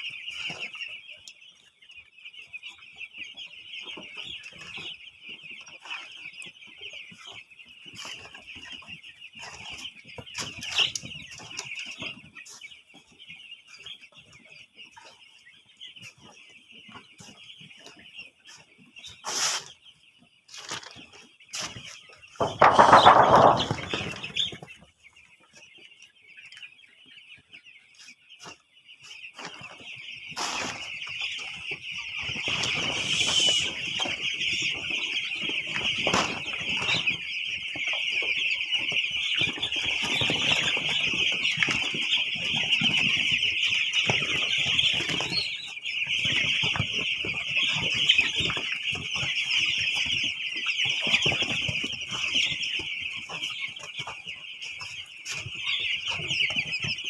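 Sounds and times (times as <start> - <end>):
birds scuffling: 0.0 - 57.0
chickens calling: 0.0 - 57.0
wings flapping: 22.4 - 24.6.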